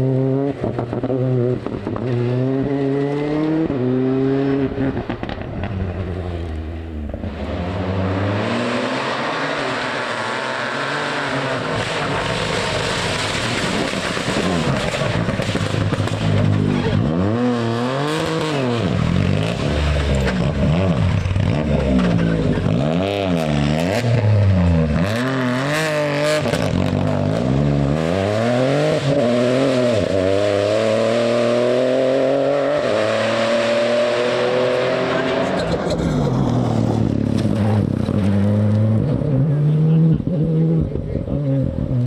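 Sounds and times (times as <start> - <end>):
rally car engine revving: 0.0 - 42.0
engine crackles: 11.6 - 17.2, 34.8 - 39.8.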